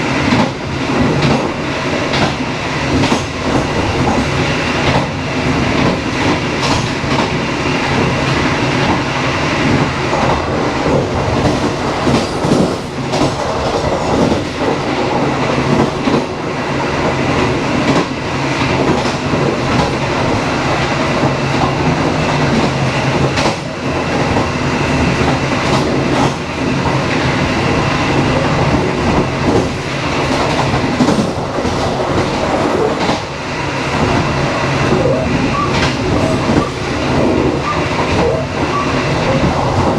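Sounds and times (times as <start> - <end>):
train rumble and hum: 0.0 - 39.9.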